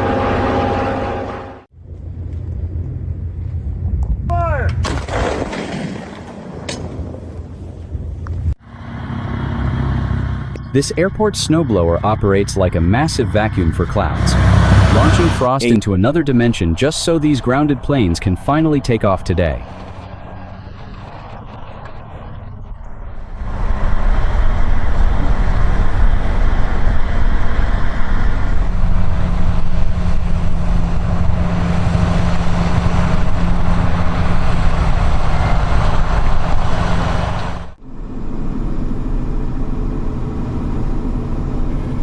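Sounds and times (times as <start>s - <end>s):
snow-clearing machine engine drone: 0.0s - 3.6s, 8.6s - 42.0s
dense rushing noise: 8.4s - 42.0s
second engine running: 8.6s - 42.0s.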